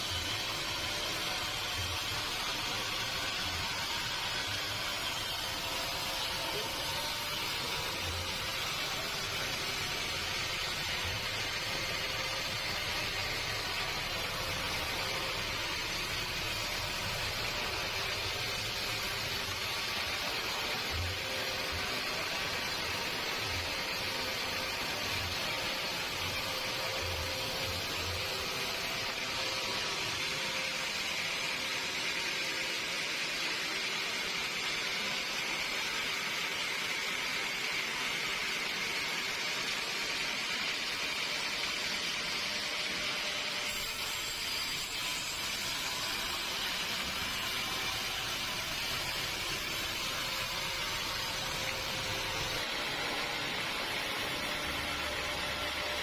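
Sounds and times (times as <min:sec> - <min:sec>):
machinery hissing: 0:00.0 - 0:40.4.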